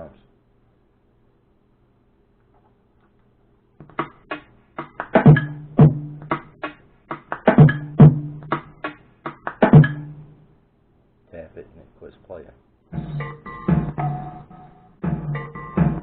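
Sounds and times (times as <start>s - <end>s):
looped drum beat: 3.8s - 10.4s, 12.9s - 14.4s, 15.0s - 16.0s.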